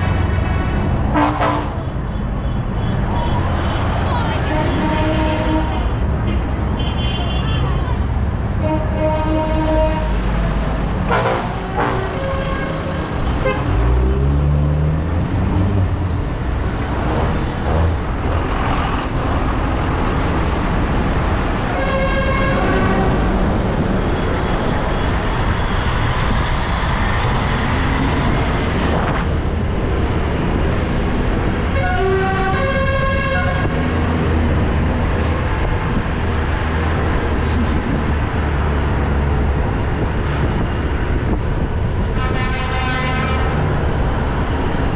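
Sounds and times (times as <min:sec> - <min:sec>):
tractor engines rumbling: 0:00.0 - 0:44.9
horn tooting: 0:01.1 - 0:03.7, 0:04.4 - 0:07.8, 0:08.6 - 0:14.1, 0:21.7 - 0:23.3, 0:31.8 - 0:33.8, 0:42.1 - 0:43.6.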